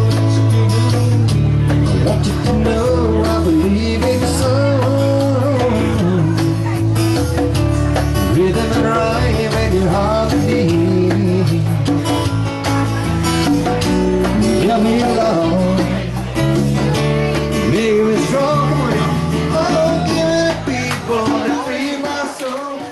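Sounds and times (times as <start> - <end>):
live rock band playing: 0.0 - 22.9.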